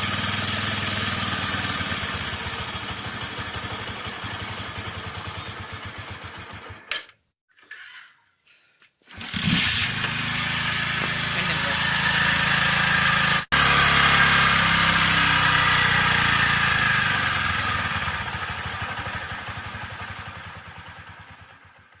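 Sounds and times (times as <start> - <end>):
motorcycle engine running: 0.0 - 6.9, 9.4 - 22.0.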